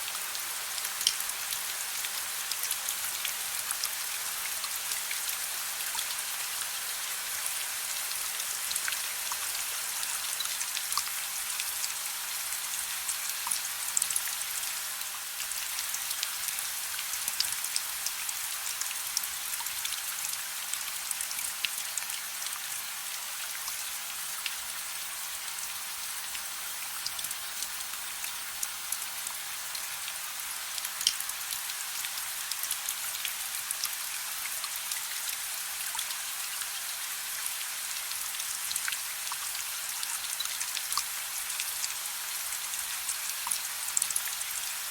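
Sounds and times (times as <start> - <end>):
soft steady rain: 0.0 - 44.9.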